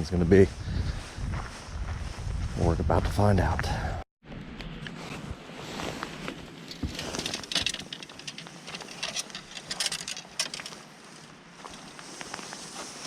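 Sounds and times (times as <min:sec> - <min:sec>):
footsteps on wet ground: 0:00.1 - 0:03.8, 0:10.6 - 0:13.0.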